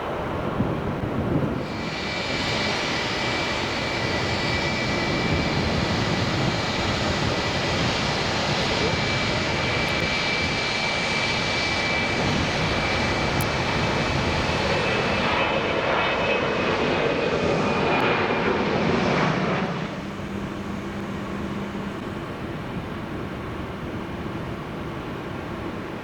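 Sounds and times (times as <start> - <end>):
jet engine noise: 0.0 - 26.0.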